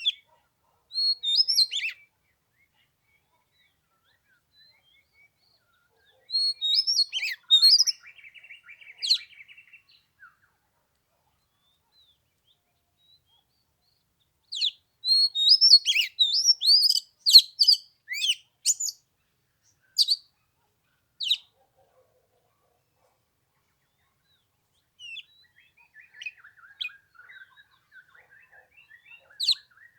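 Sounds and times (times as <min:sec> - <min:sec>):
bird singing whistled phrases: 0:01.0 - 0:02.0, 0:06.3 - 0:09.9, 0:14.6 - 0:19.0, 0:20.0 - 0:20.2, 0:25.0 - 0:29.9.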